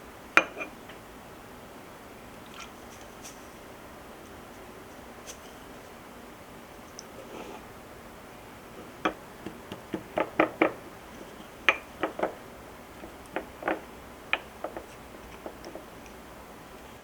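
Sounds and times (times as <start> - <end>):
light irregular knocks and clicks: 8.8 - 16.3.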